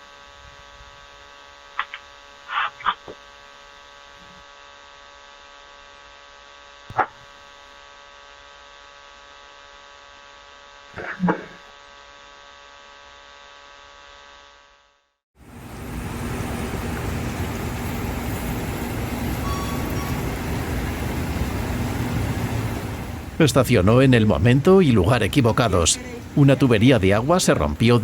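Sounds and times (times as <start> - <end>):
electrical hum: 0.0 - 4.7, 15.4 - 28.0
road traffic: 15.4 - 28.0.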